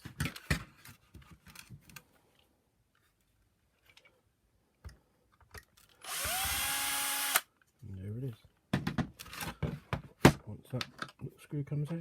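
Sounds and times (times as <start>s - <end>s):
power screwdriver whining: 6.0s - 7.5s.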